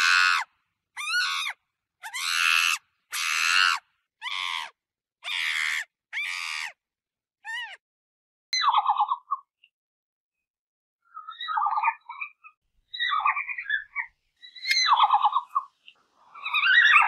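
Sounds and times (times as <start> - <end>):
monkey screeching: 0.0 - 6.8, 7.4 - 7.8, 16.4 - 17.0.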